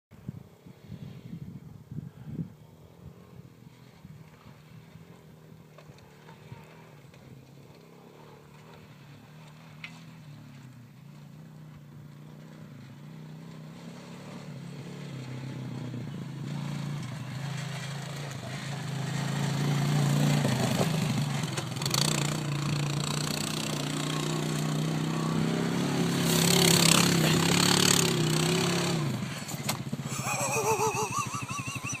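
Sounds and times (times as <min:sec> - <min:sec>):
quad bike engine running: 0:02.8 - 0:32.0.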